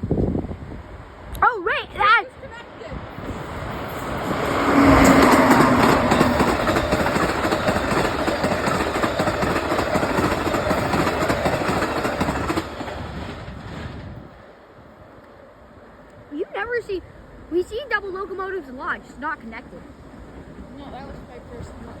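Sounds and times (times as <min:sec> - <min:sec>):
low train engine note: 0:02.4 - 0:22.0
train wheels clattering over rails: 0:03.1 - 0:14.3.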